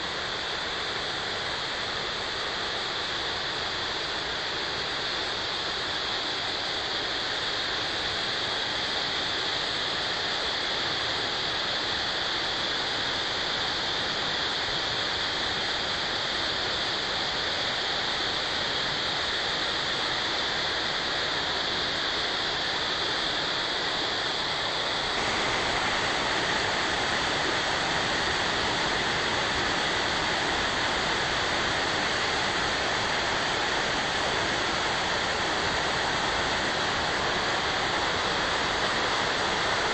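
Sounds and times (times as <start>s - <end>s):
waterfall rushing: 24.2s - 39.9s.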